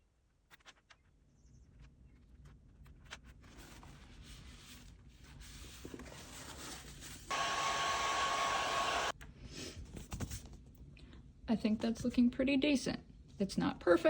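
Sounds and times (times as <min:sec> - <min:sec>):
heat gun blowing: 0:07.3 - 0:09.2.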